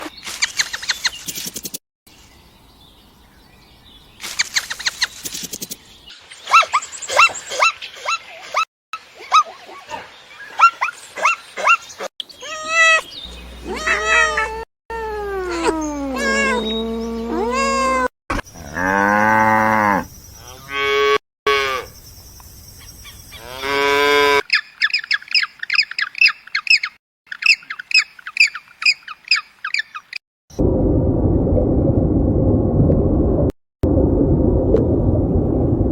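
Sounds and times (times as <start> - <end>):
cow mooing: 18.6 - 21.9.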